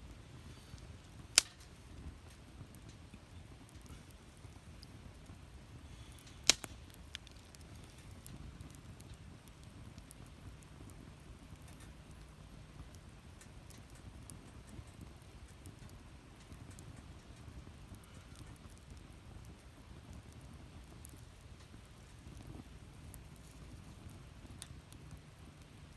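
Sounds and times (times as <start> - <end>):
fire low rumble: 0.0 - 25.9
small fire crackles: 0.0 - 25.9
loud fire pop: 0.8 - 1.8, 6.0 - 8.0.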